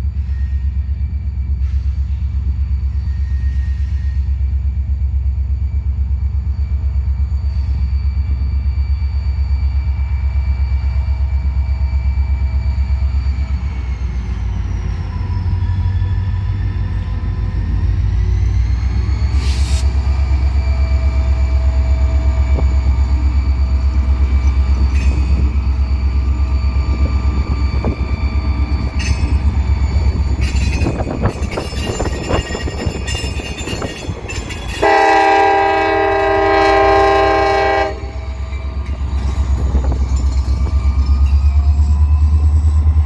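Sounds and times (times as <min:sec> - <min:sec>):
freight train rumble: 0:00.0 - 0:43.0
locomotive air horn blast: 0:34.8 - 0:38.2.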